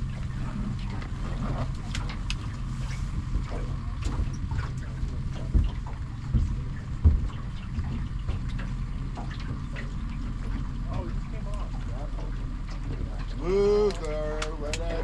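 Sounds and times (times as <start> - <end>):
boat motor humming: 0.0 - 15.0
dull thumps on boat: 3.3 - 10.7.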